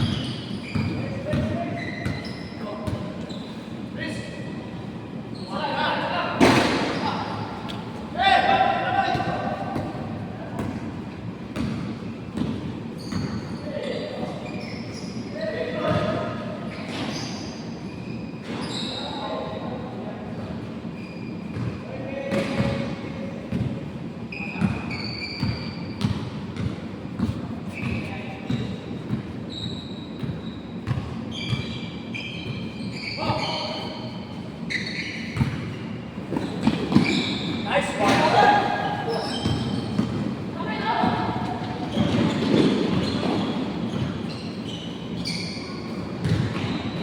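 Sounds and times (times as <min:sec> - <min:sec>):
sneakers squeaking on court: 0:00.0 - 0:04.6, 0:05.2 - 0:08.1, 0:08.7 - 0:19.7, 0:20.4 - 0:47.0
basketball bouncing on floor: 0:30.2 - 0:31.7, 0:35.4 - 0:35.7, 0:46.2 - 0:46.9.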